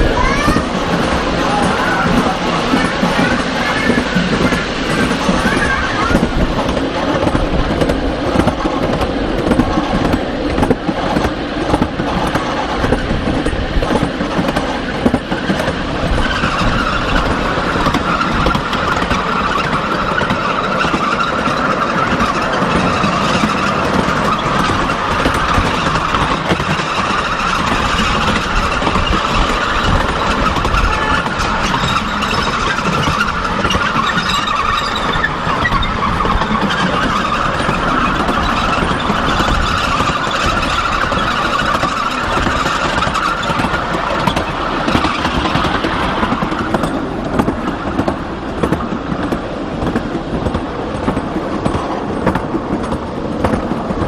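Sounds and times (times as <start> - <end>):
miniature train rumbling: 0.0 - 54.0
high steady squeal: 14.8 - 47.1.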